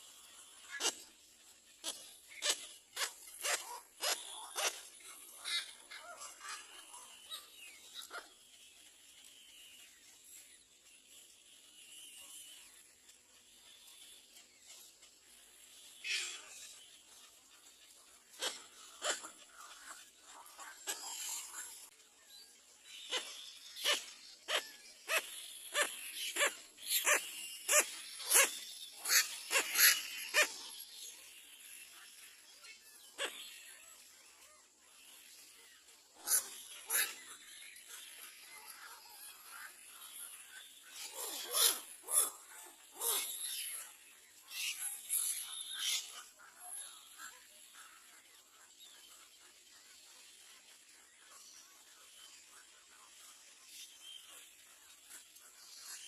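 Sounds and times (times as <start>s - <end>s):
bird calling: 0.1s - 10.2s, 22.9s - 31.3s
high-pitched animal calls: 23.1s - 30.8s.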